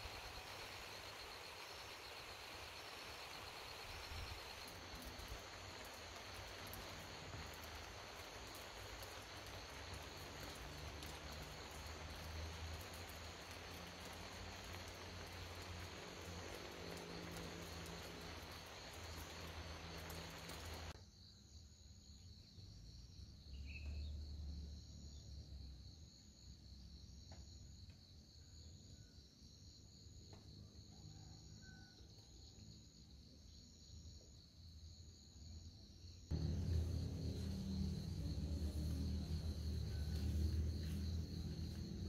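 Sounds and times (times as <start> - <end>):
steady hiss: 0.0 - 21.0, 36.3 - 42.0
insects chirring: 0.0 - 22.8, 32.7 - 42.0
pulsing insect trill: 36.0 - 42.0.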